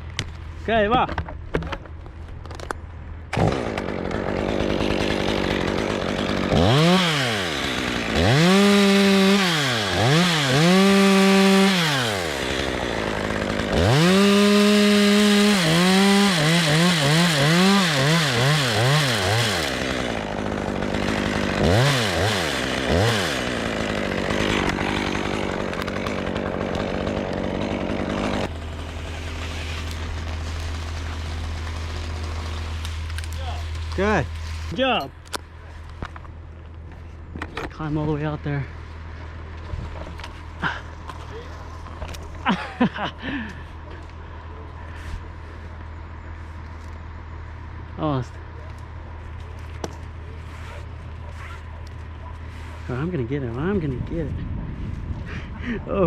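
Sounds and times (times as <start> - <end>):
chainsaw revving and idling: 3.3 - 35.0.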